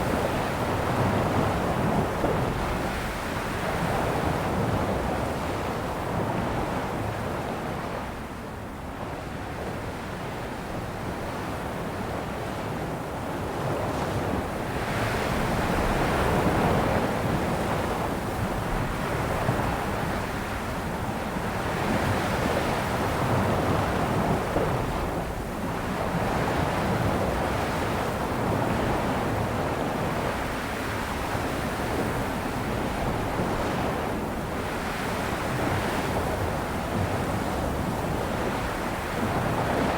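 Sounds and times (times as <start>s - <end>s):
ocean waves breaking on shore: 14.3s - 39.9s.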